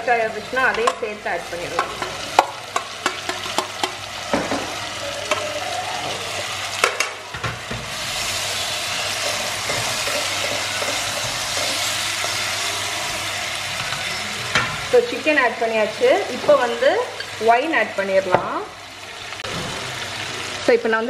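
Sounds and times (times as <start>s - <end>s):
chicken sizzling in a pot: 0.0s - 21.0s
metal tongs clacking on pot: 0.7s - 1.1s, 1.7s - 4.1s, 9.1s - 12.4s.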